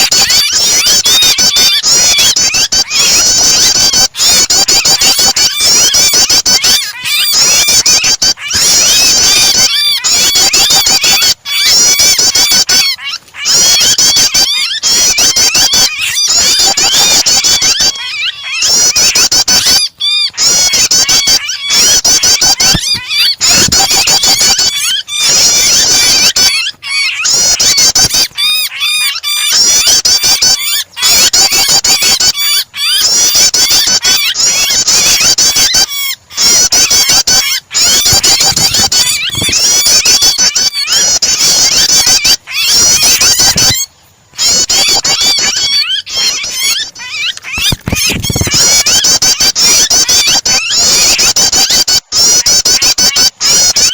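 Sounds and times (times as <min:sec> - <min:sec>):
bird squealing in distress: 0:00.0 - 0:53.9
rapid high-pitched bird chirping: 0:00.0 - 0:53.9.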